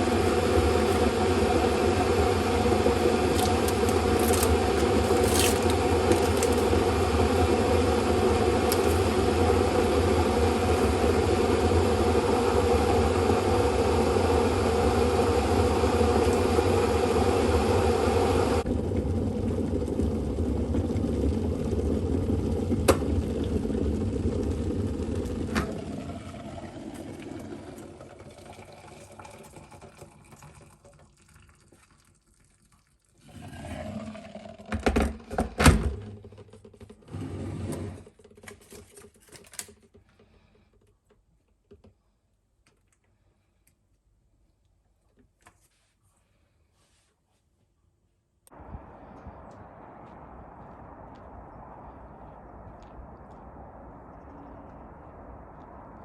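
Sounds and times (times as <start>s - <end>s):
motor running: 0.0s - 24.0s.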